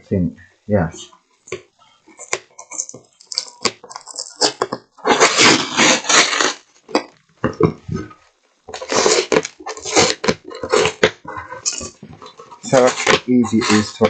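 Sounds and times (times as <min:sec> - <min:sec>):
tape peeling off cardboard: 0:04.4 - 0:06.7.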